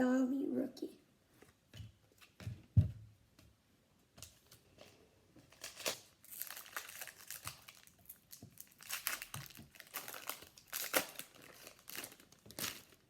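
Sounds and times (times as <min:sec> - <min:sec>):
wrapper crinkling and tearing: 0:04.8 - 0:13.0.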